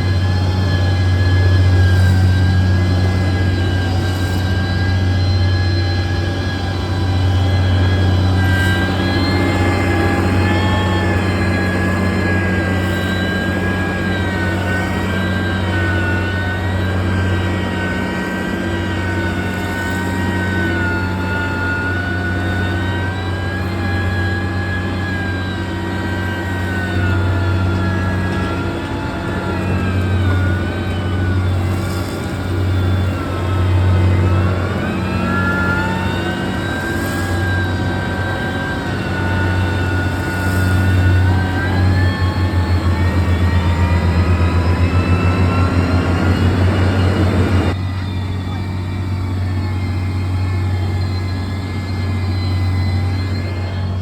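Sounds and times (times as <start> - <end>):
heavy machine engine droning: 0.0 - 54.0
high engine whine: 0.0 - 54.0.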